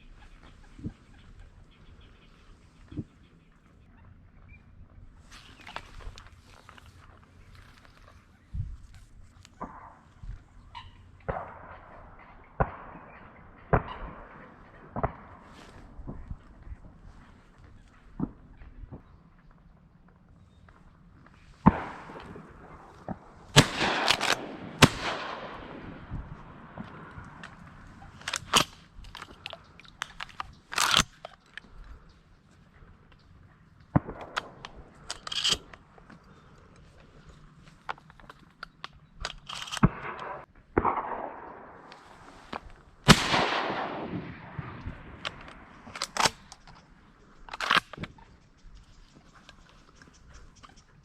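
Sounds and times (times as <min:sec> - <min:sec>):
shotgun shots echoing: 0:09.6 - 0:17.1, 0:21.6 - 0:31.2, 0:33.9 - 0:35.8, 0:39.5 - 0:46.7.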